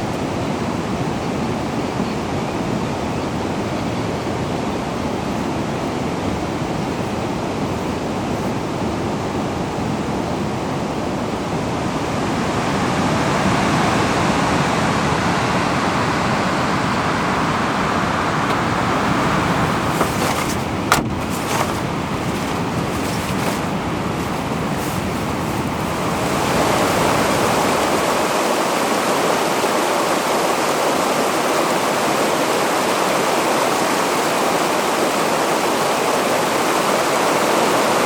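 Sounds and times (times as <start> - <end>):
rushing water: 17.5 - 38.0.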